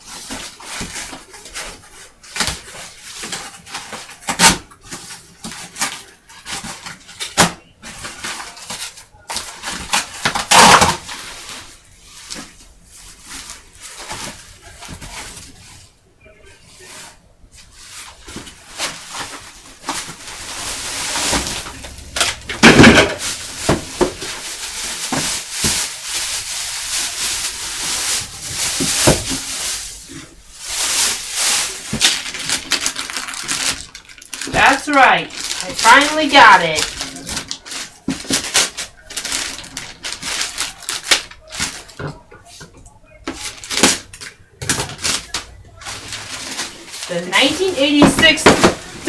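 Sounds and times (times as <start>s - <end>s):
cardboard box rustling and scraping: 18.3s - 26.3s.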